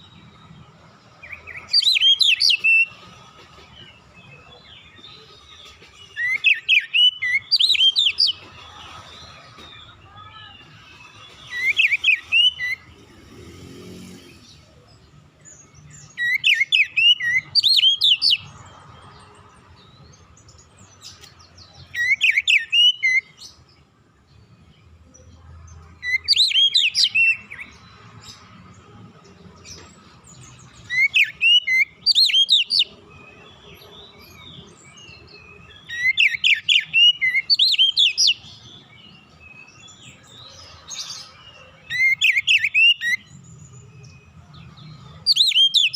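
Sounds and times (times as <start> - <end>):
bird singing whistled notes: 1.2 - 3.0, 4.5 - 8.4, 10.5 - 13.0, 15.4 - 18.5, 21.8 - 23.6, 26.0 - 27.8, 30.3 - 45.9.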